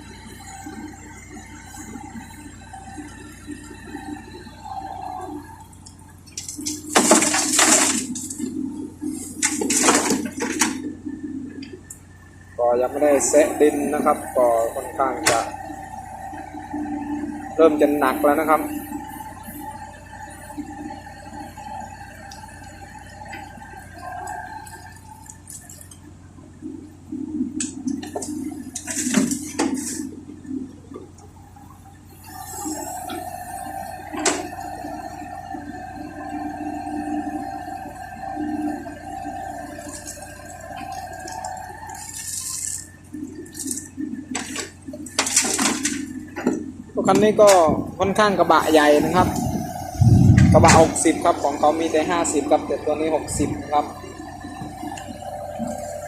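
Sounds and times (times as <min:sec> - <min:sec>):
excavator engine humming: 0:00.0 - 0:56.0
bucket clanking and scraping: 0:06.3 - 0:08.5, 0:09.3 - 0:10.8, 0:28.8 - 0:30.0, 0:44.3 - 0:47.9.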